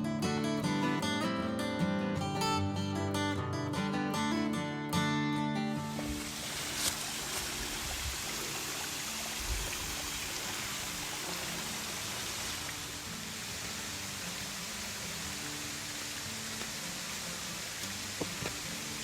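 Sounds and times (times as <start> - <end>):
flowing water rushing: 5.9 - 19.0.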